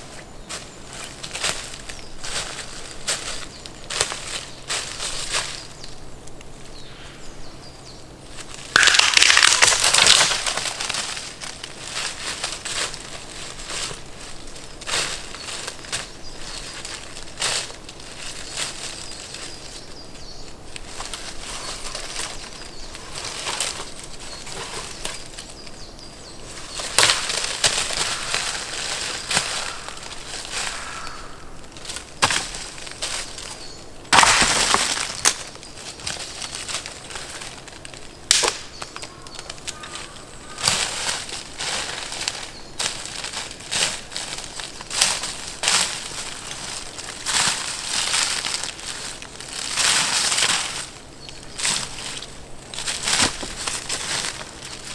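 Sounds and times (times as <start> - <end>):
rustling and crunching: 0.0 - 6.9, 8.1 - 54.9
sharp crackles and clicks: 8.7 - 11.4.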